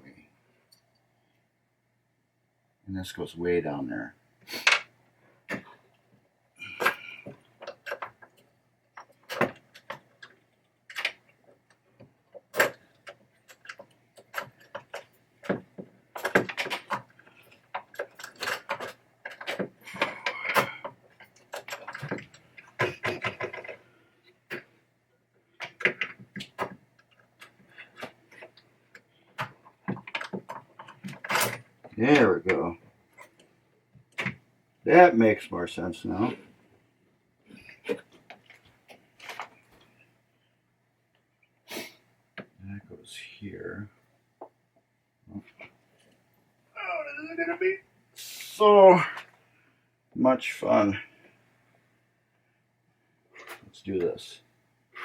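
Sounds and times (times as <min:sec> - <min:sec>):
metal parts clicking and rattling: 0:09.0 - 0:23.8, 0:25.6 - 0:31.7.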